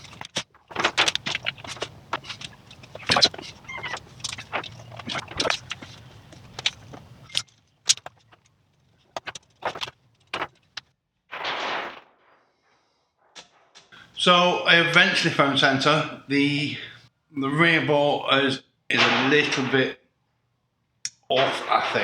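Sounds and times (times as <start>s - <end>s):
tools and metal parts clicking: 0.0s - 10.8s.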